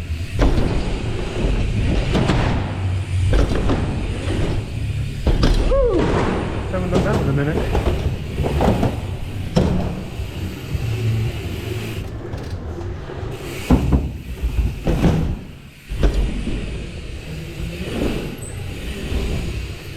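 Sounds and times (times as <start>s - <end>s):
bike tyres rolling: 0.0s - 19.9s
bike landing thumps: 0.1s - 10.9s, 13.4s - 16.8s.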